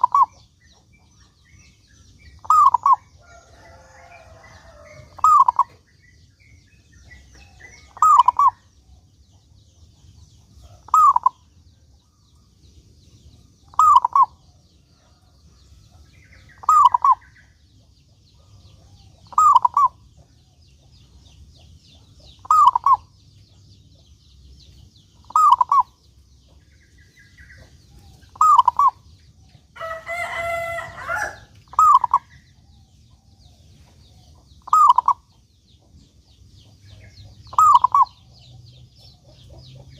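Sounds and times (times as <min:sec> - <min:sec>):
dove cooing: 0:00.0 - 0:00.4, 0:02.4 - 0:05.8, 0:07.4 - 0:08.7, 0:10.6 - 0:11.4, 0:13.7 - 0:14.4, 0:16.6 - 0:17.4, 0:18.4 - 0:20.0, 0:22.4 - 0:23.1, 0:25.2 - 0:26.0, 0:27.6 - 0:29.1, 0:29.9 - 0:32.4, 0:34.1 - 0:35.3, 0:37.5 - 0:38.3
harsh bird call: 0:25.3 - 0:25.9, 0:29.8 - 0:32.3.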